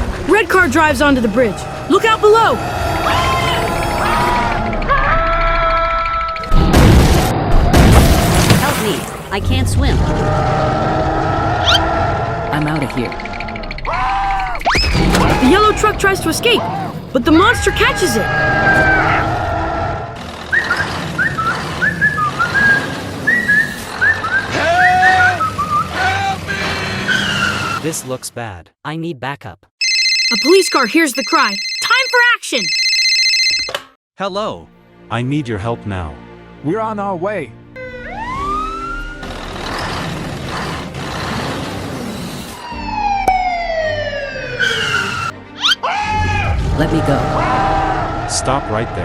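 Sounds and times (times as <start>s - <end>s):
engine rush: 14.9s - 28.2s, 37.8s - 45.4s
vehicle whine: 20.2s - 27.8s
rising whistle-like chirps: 20.5s - 26.0s.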